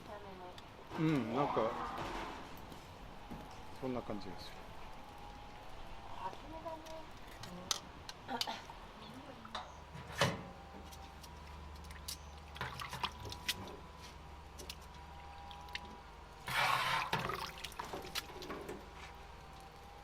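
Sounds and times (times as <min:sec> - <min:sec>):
water pouring and dripping: 0:02.0 - 0:08.2, 0:10.8 - 0:20.0.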